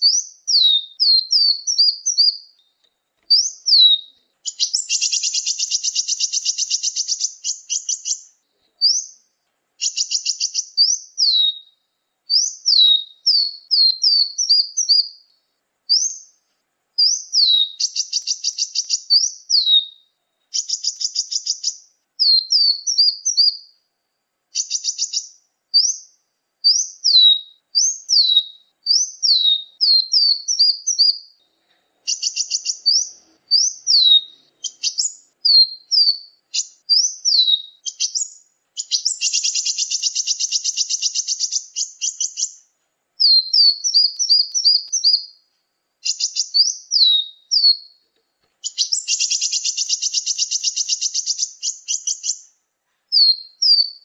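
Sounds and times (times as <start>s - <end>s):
sharp high bird chirps: 0.0s - 16.4s, 17.0s - 23.8s, 24.5s - 48.0s, 48.6s - 54.0s
buzzy rattling bird trills: 3.3s - 9.2s, 9.8s - 11.6s, 17.0s - 23.6s, 32.0s - 45.3s, 48.6s - 52.5s.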